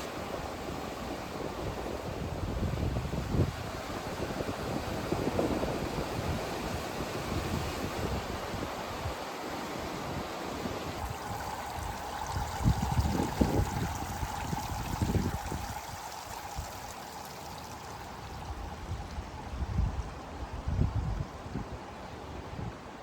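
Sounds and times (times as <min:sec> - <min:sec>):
wind buffeting microphone: 0:00.0 - 0:09.2, 0:09.8 - 0:23.0
running water rushing: 0:09.2 - 0:20.6.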